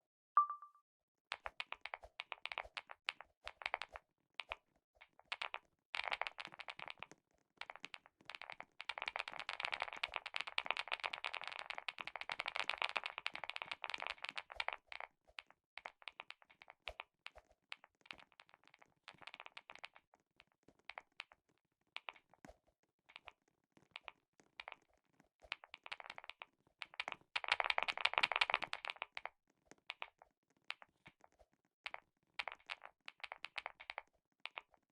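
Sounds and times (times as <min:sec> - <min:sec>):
typing on clicky keyboard: 0:25.5 - 0:34.9.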